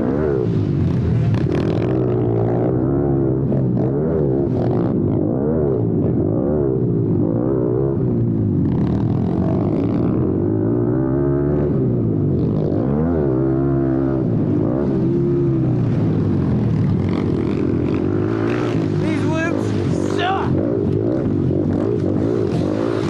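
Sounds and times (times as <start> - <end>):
small motorbike engines revving: 12.5 - 23.0.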